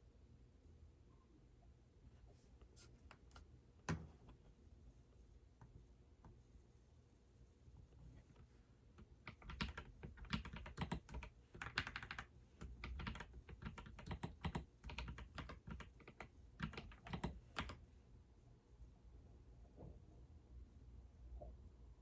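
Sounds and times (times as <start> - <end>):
typing on computer keyboard: 9.2 - 17.8.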